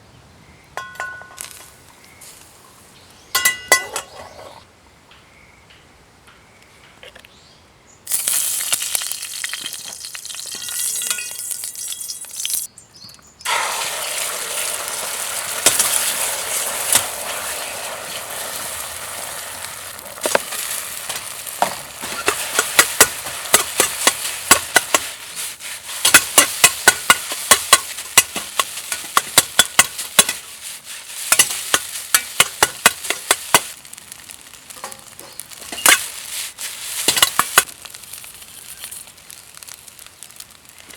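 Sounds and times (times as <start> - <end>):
rice sizzling in a wok: 8.1 - 12.7, 13.4 - 40.9
utensil knocking against wok: 21.6 - 25.1, 26.0 - 30.5, 31.3 - 33.7.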